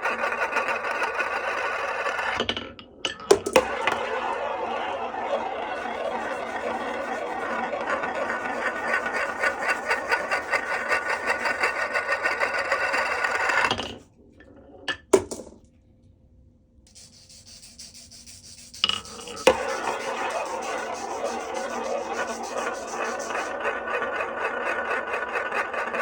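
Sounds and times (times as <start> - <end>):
marbles rolling down wooden run: 19.4 - 26.0.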